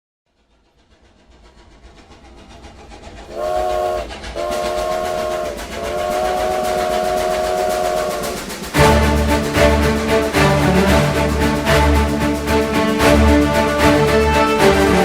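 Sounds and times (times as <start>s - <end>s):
steam locomotive chugging: 0.3s - 15.0s
steam whistle blasts: 3.3s - 11.3s.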